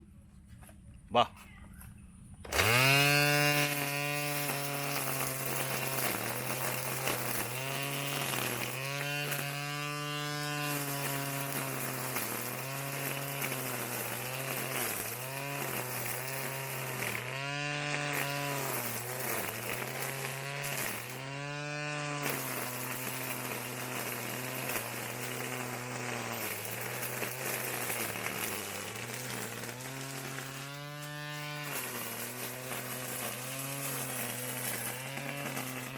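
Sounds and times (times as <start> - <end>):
brush cutter engine running: 2.4 - 35.9.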